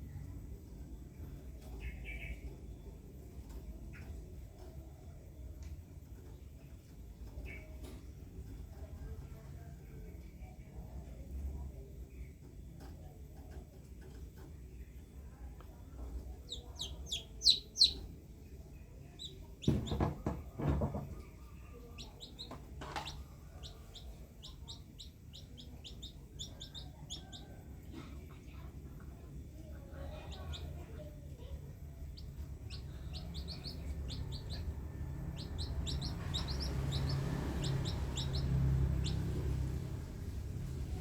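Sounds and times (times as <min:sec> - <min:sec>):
low steady rumble: 0:00.0 - 0:41.0
small birds chirping: 0:00.0 - 0:41.0
loud knocks: 0:19.6 - 0:21.2.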